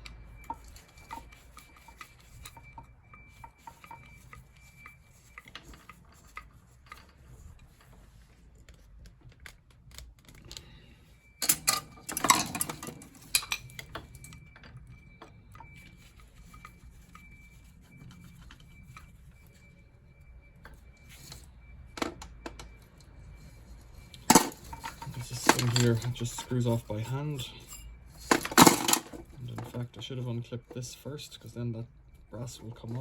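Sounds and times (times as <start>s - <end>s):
metal rattling and scraping: 11.4s - 14.7s, 24.0s - 29.9s
clicks of parts handled: 24.2s - 26.5s.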